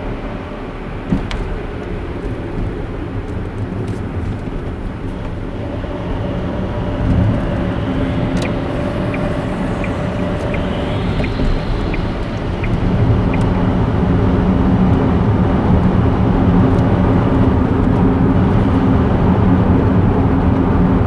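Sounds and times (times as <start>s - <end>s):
car tyres and engine rumble: 0.0s - 21.0s
light regular ticking: 7.4s - 14.1s.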